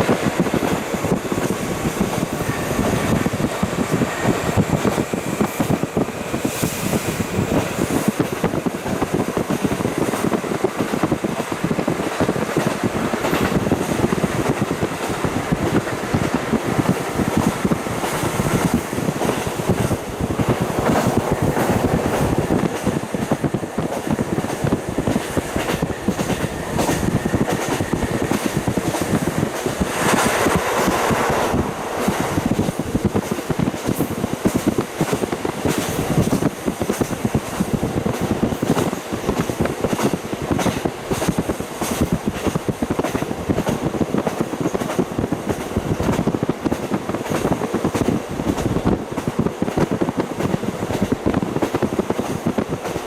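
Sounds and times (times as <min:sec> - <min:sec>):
railcar wheel and rail noise: 0:00.0 - 0:53.0
wind rushing: 0:00.0 - 0:53.0.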